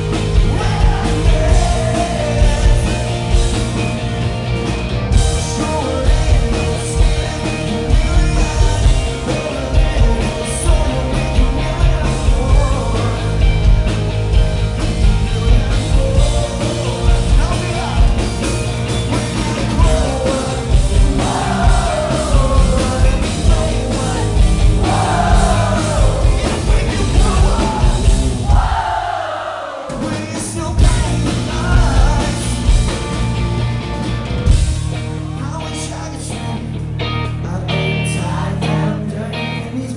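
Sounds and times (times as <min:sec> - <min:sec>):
guitars: 0:00.0 - 0:29.1, 0:29.9 - 0:39.9
drums: 0:00.0 - 0:39.9
person singing: 0:00.4 - 0:03.4, 0:05.4 - 0:13.5, 0:15.4 - 0:18.4, 0:19.1 - 0:28.7, 0:37.2 - 0:39.9.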